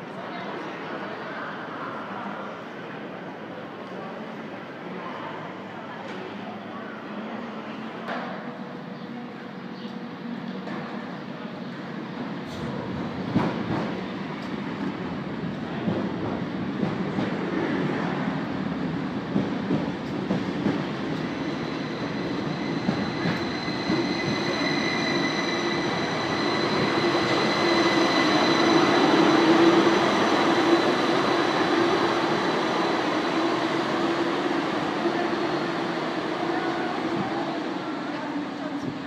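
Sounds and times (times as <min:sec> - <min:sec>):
train rolling rail noise: 0:00.0 - 0:39.0
electric train high whine: 0:20.9 - 0:37.1.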